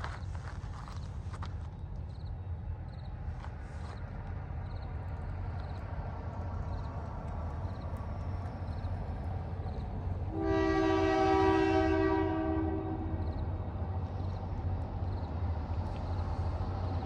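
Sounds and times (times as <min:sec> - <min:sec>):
train rumble: 0:00.0 - 0:17.0
train air horn blast: 0:10.3 - 0:13.2.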